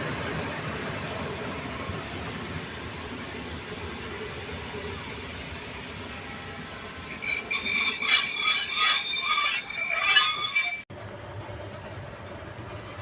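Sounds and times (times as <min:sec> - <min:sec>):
train low rumble: 0:00.0 - 0:13.0
train wheels squealing: 0:05.8 - 0:10.9.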